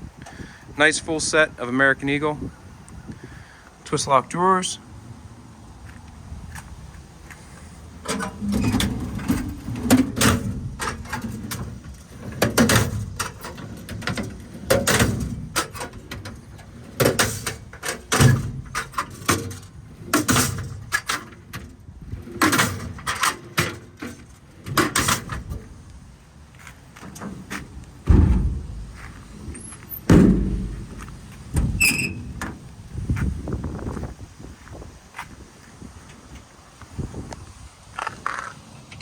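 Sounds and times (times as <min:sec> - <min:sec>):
metal drawers sliding and clanking: 0:08.0 - 0:25.8, 0:26.6 - 0:32.7.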